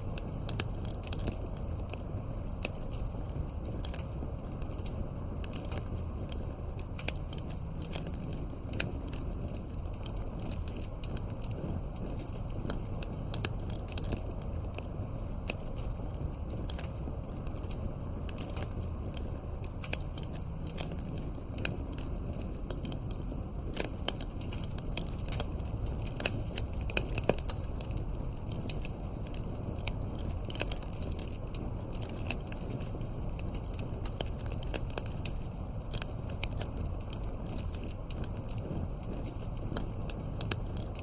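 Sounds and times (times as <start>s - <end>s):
campfire crackling and popping: 0.0s - 41.0s.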